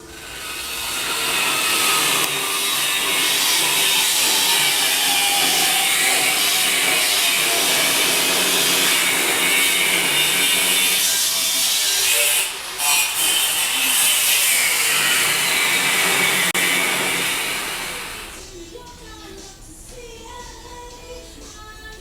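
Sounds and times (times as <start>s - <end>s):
handheld power tool running: 0.0s - 18.4s.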